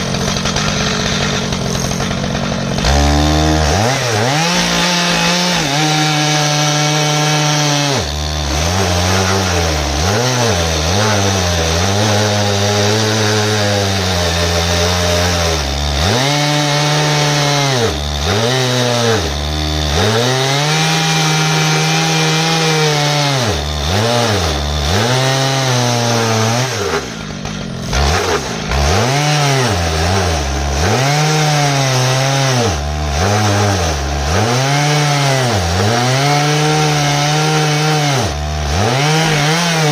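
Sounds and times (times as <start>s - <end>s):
chainsaw cutting through log: 0.0s - 39.9s.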